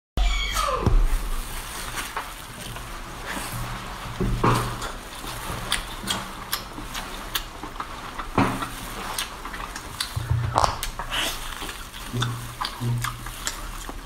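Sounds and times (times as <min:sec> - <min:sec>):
chewing and wet mouth sounds: 0:01.7 - 0:14.0
squelchy bite: 0:10.5 - 0:11.4.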